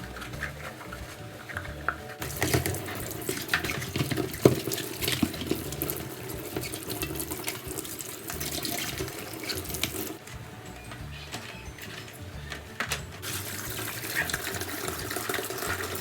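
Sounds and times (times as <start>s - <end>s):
clinks and knocks: 0.0s - 16.0s
tap water running into sink: 2.2s - 10.2s, 13.2s - 16.0s.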